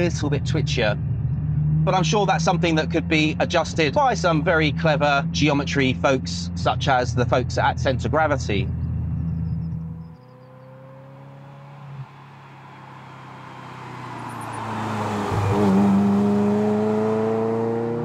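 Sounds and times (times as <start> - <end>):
race car engine passing by: 10.2 - 18.0.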